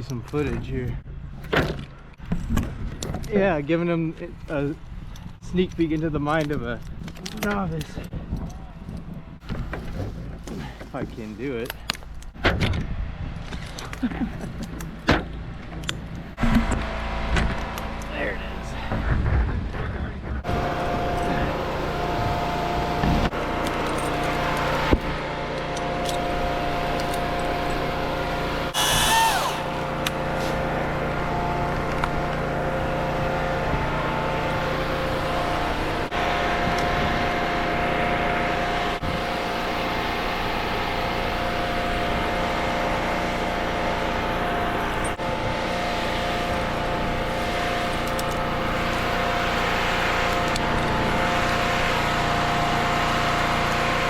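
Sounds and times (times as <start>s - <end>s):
engine running: 0.0s - 54.0s
burst of hiss: 28.8s - 29.6s.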